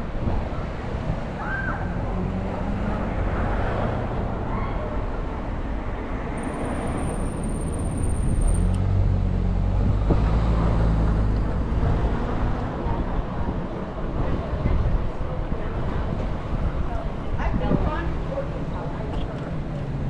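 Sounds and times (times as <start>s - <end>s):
city bus running: 0.0s - 20.0s.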